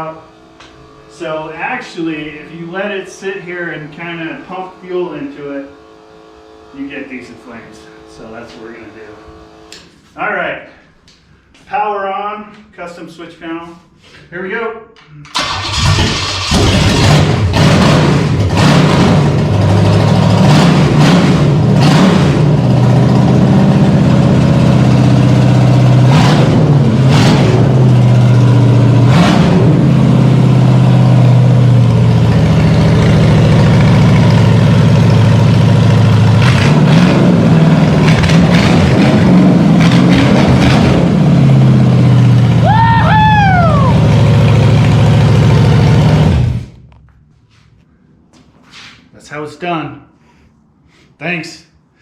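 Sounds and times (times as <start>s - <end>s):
engine revving: 15.3s - 42.6s, 43.6s - 46.8s
exhaust cracks: 15.3s - 47.3s.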